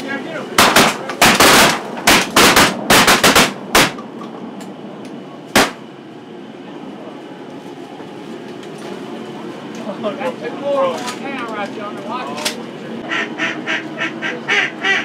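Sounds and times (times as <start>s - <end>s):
shotgun shots: 0.6s - 4.0s, 5.6s - 5.8s.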